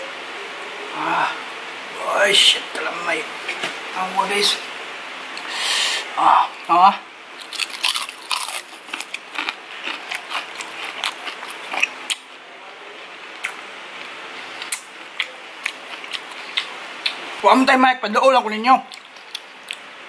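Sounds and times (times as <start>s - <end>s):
crunching fried food: 7.4s - 12.3s, 13.4s - 17.2s
chewing clicks: 7.5s - 12.2s, 18.9s - 19.8s.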